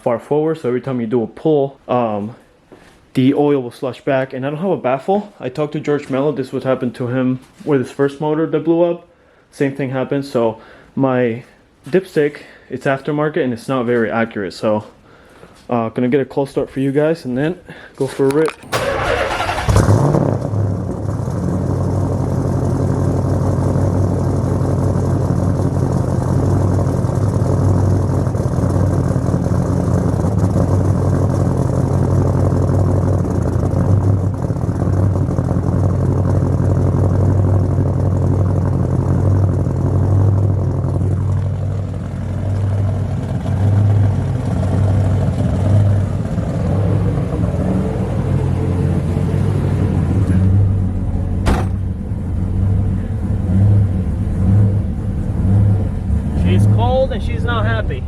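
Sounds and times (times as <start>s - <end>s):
car engine idling: 18.4s - 58.0s.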